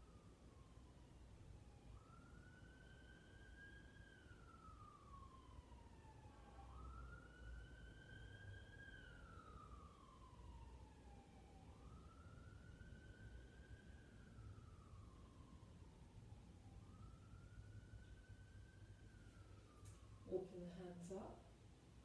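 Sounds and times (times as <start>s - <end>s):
faint siren wailing: 0.0s - 22.0s.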